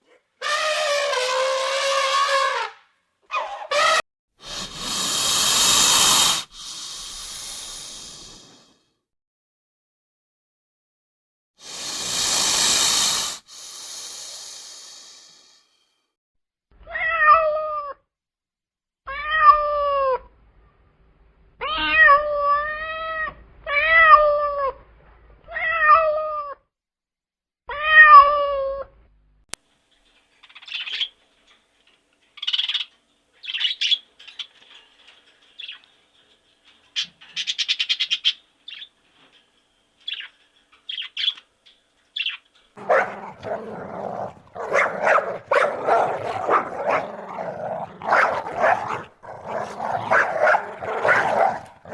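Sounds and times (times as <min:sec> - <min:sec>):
harsh noisy animal sound: 0:04.5 - 0:06.5, 0:42.8 - 0:51.9
cat meowing: 0:42.8 - 0:51.9.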